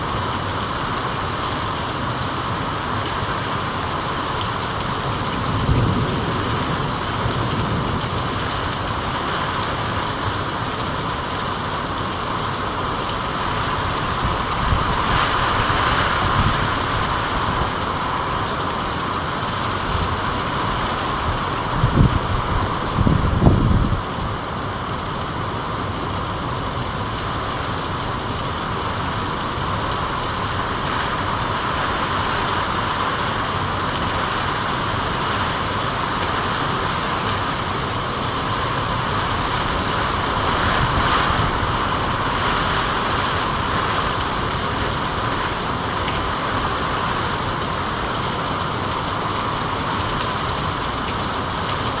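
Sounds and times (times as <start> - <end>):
steady rainfall hiss: 0.0 - 52.0.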